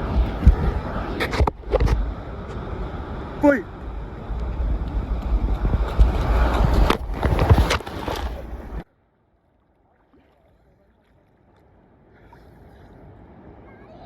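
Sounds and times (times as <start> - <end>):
ocean water sloshing and splashing: 0.0 - 8.9, 9.5 - 14.0
wind rumbling on microphone: 0.0 - 8.9.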